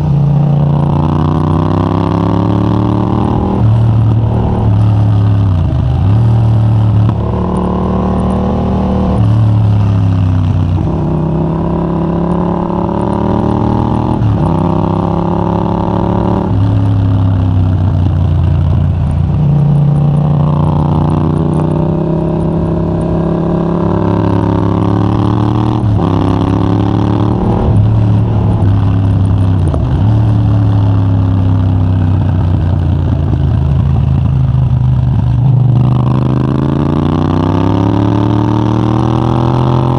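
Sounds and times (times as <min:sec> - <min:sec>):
loud motorcycle engine revving: 0:00.0 - 0:39.9.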